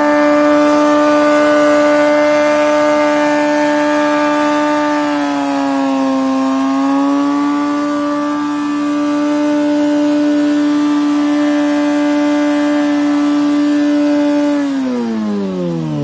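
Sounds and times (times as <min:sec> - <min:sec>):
motorcycle engine at high revs: 0:00.0 - 0:16.0.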